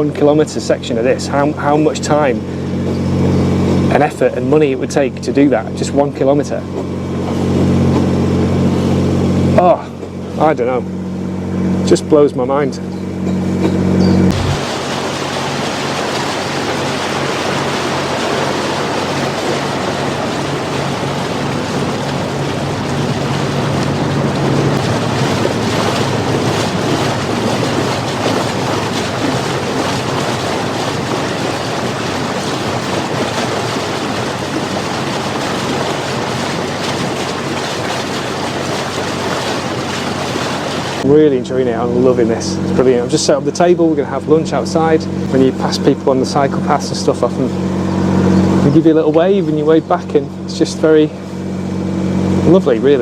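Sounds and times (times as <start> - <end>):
faint low engine hum: 0.0 - 53.0
wind and water rushing: 14.3 - 41.7.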